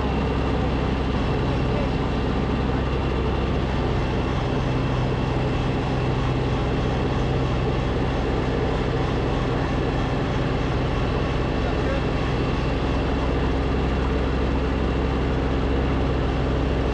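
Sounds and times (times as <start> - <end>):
snowblower engine running: 0.0 - 16.9.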